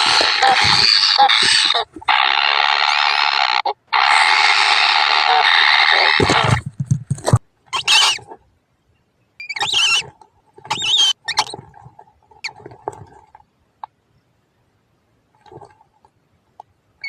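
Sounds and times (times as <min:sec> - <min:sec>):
birds begging calls: 0:00.0 - 0:06.6, 0:07.7 - 0:08.4, 0:09.3 - 0:11.7.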